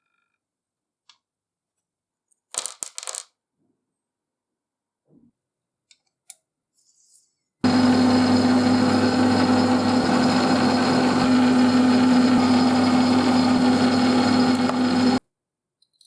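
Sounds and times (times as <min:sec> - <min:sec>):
machine tool motor humming: 0:07.6 - 0:15.2.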